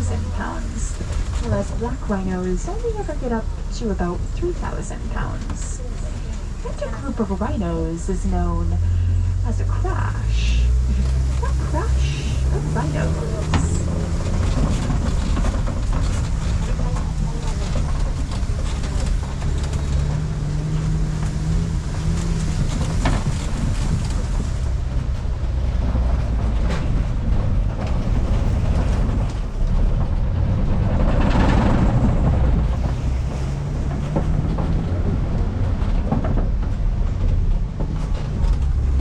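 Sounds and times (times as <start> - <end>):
truck engine rumble: 0.0 - 39.0
knocks and rattles: 12.5 - 39.0.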